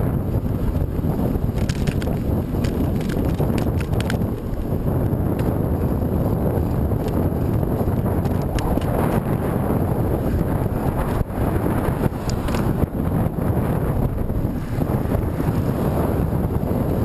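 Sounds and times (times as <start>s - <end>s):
wind buffeting microphone: 0.0s - 17.0s
faint bike clicks and ticks: 1.5s - 4.7s, 6.7s - 7.6s, 8.2s - 9.2s, 12.2s - 12.7s.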